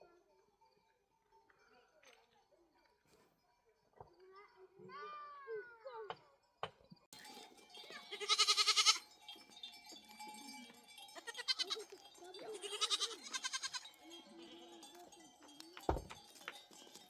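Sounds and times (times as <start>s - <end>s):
farm animals bleating: 7.9s - 9.0s, 11.2s - 14.0s.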